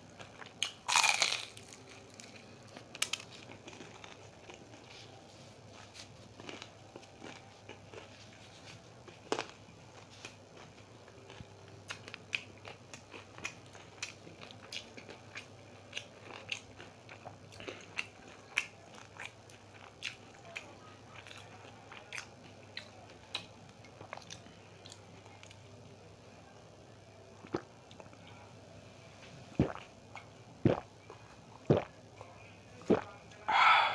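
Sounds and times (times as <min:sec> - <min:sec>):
chewing crunchy fried pastry: 0:00.0 - 0:26.0.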